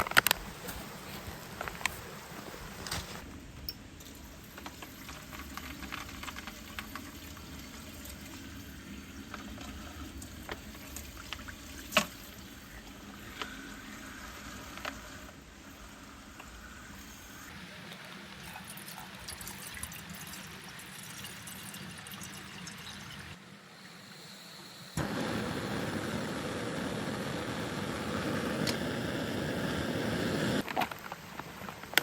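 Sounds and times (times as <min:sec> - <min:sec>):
campfire crackling and popping: 0:04.5 - 0:08.0, 0:25.0 - 0:32.0.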